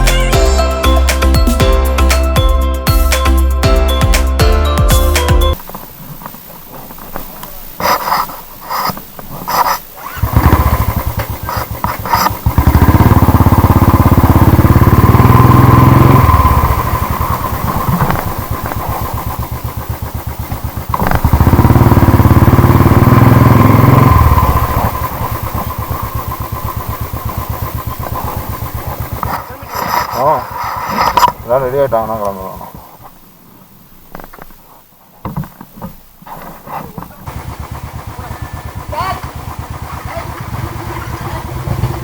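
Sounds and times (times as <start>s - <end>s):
motorcycle engine idling: 3.6s - 33.3s, 36.4s - 42.0s
motorcycle engine starting and revving: 5.5s - 33.2s, 36.3s - 42.0s.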